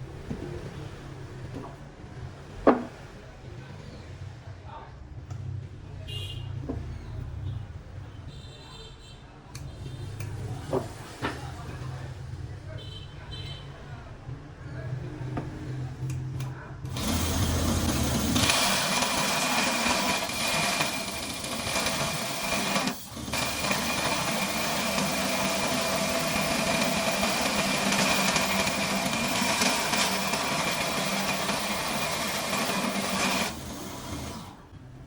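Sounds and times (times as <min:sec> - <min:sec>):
belt grinder whining: 0:16.9 - 0:34.7.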